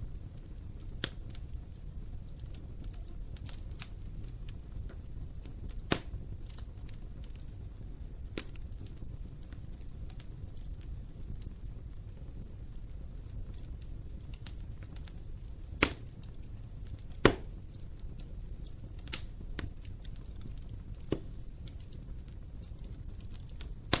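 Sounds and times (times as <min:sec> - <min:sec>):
fire crackling: 0:00.0 - 0:24.0
wood fire rumbling: 0:00.0 - 0:24.0
sharp pop from fire: 0:05.7 - 0:06.6, 0:08.4 - 0:08.6, 0:15.7 - 0:16.2, 0:16.9 - 0:17.6, 0:19.0 - 0:19.8, 0:21.0 - 0:21.8, 0:23.6 - 0:24.0.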